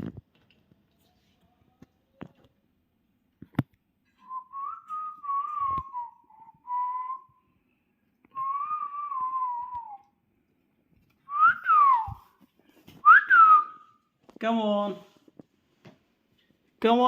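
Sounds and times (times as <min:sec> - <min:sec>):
whistled melody: 0:04.2 - 0:07.6, 0:08.3 - 0:10.1, 0:11.3 - 0:12.3, 0:13.0 - 0:14.0.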